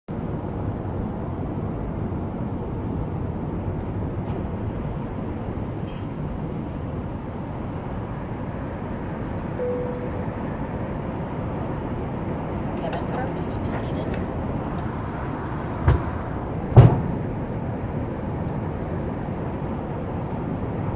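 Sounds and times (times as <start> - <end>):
jet aircraft rumble: 0.1 - 20.9
faint short tone: 9.6 - 10.6.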